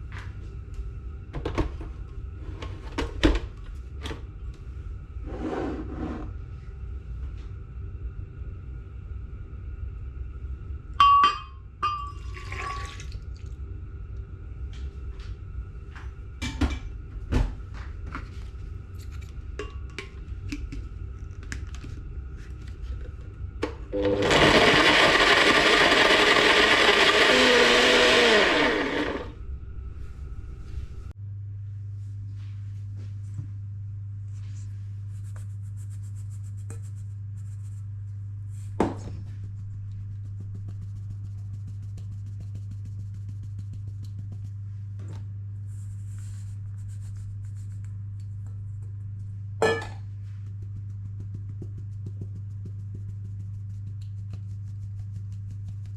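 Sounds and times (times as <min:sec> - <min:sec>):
steady low hum: 0:00.0 - 0:26.1, 0:28.2 - 0:55.9
kitchen appliance motor running: 0:24.0 - 0:29.4.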